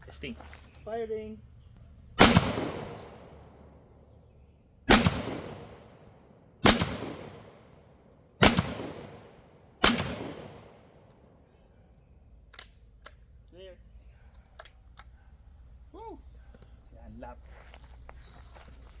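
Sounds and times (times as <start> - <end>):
shotgun shots echoing: 2.2 - 3.9, 4.9 - 7.8, 8.4 - 11.4.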